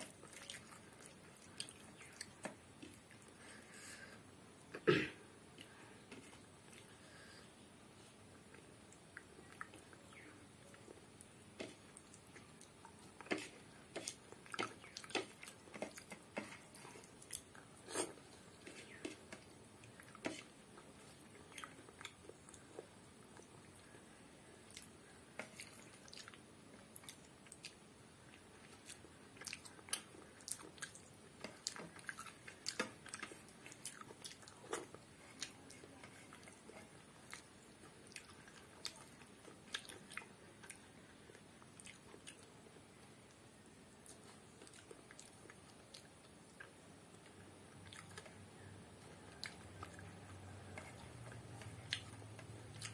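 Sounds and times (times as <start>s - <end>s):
chewing and wet mouth clicks: 27.0s - 36.6s, 37.2s - 42.5s, 44.0s - 48.4s, 49.2s - 52.9s.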